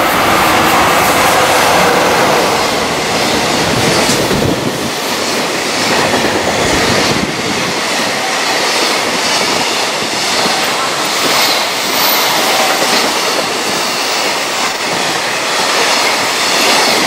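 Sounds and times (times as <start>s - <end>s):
freight train passing: 0.0s - 17.0s
wheels clacking on rail joints: 0.0s - 17.0s.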